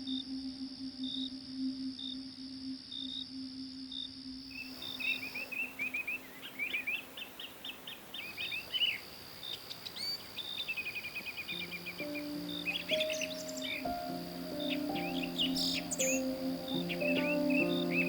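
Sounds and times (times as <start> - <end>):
background ambience hiss: 0.0 - 18.0
small birds chirping: 4.5 - 18.0.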